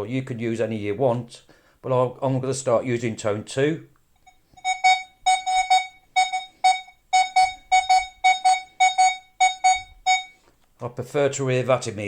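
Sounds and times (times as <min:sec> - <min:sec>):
metal detector short beeps: 0:04.2 - 0:10.4.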